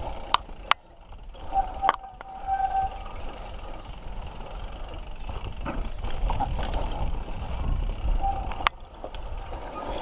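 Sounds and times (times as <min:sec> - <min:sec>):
bike tyres on dirt trail: 0:00.0 - 0:10.0
wind rumbling on microphone: 0:01.0 - 0:10.0
high squeal: 0:01.4 - 0:03.5, 0:08.1 - 0:10.0.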